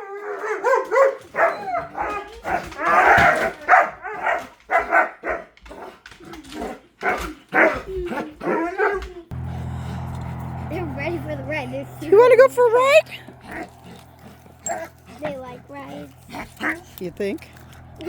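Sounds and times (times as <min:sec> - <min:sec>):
dogs barking and yelping: 0:00.0 - 0:09.3, 0:13.4 - 0:18.0.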